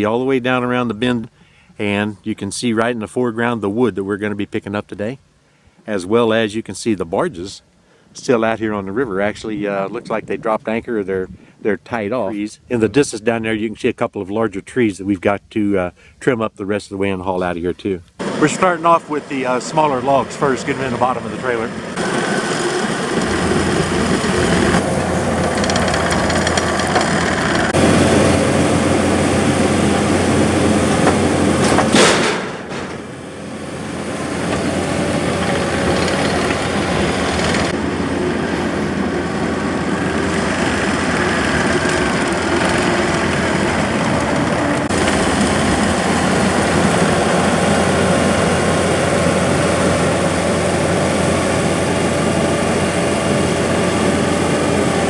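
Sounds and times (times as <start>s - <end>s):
diesel engine running: 18.2s - 55.0s
sharp loud knock: 31.1s - 33.0s.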